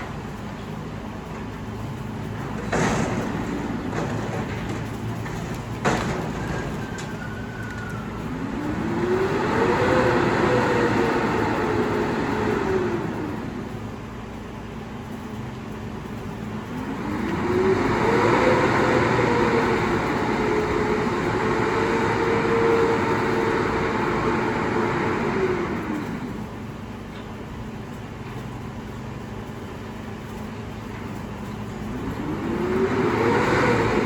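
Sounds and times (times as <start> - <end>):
garbage truck diesel engine revving: 2.2 - 14.2, 16.4 - 26.9, 31.8 - 34.0.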